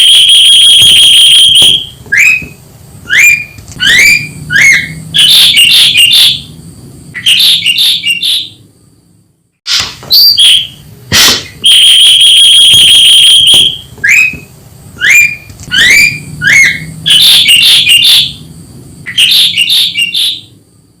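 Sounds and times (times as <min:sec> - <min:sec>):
bird calling loudly: 0:01.6 - 0:06.4, 0:07.2 - 0:08.6, 0:13.5 - 0:18.2, 0:19.1 - 0:20.5.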